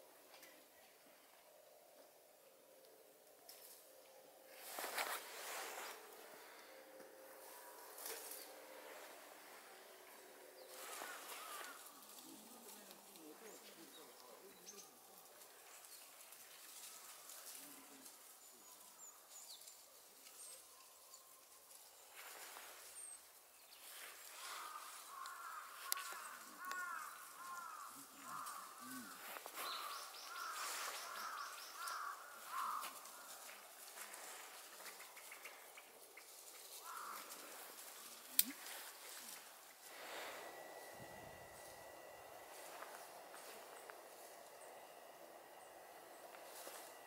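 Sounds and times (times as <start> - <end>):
birds with short arched calls: 4.6 - 15.0, 22.0 - 47.0
faint high chirps and ticks: 6.0 - 47.0.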